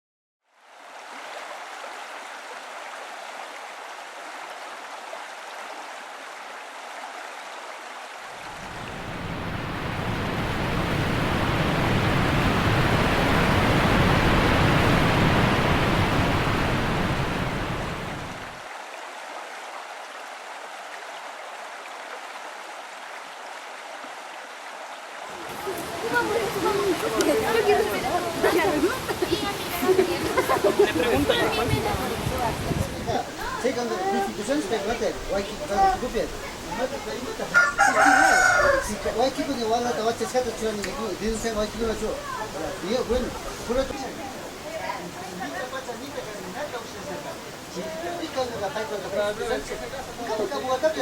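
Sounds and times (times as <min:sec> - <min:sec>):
waterfall roaring: 0:08.3 - 0:18.7, 0:25.2 - 0:51.0.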